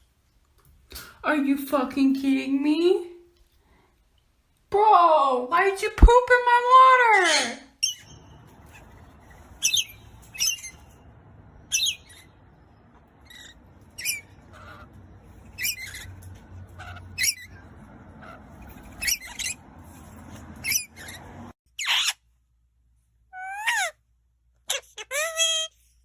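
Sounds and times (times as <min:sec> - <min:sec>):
bird squawking: 0:07.3 - 0:10.9, 0:11.7 - 0:12.4, 0:13.2 - 0:19.6.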